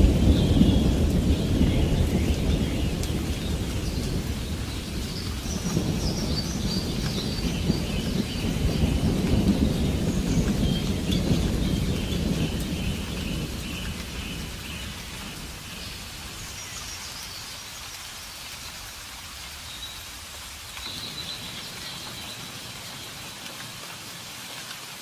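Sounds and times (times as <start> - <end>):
thunder rumble: 0.0 - 17.2
steady rainfall: 0.0 - 25.0.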